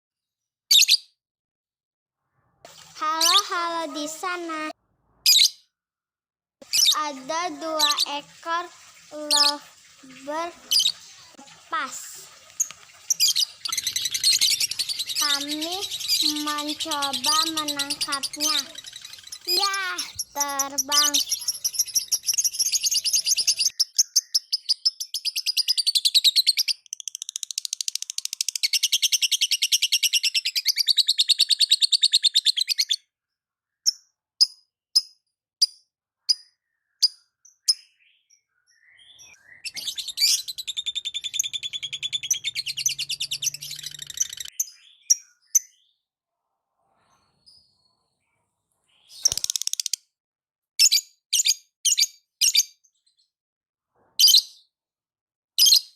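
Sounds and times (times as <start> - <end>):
lovebirds chattering: 6.6 - 25.8, 39.2 - 45.3
sharp bird chirps: 6.6 - 33.1, 33.7 - 46.0, 47.0 - 50.1.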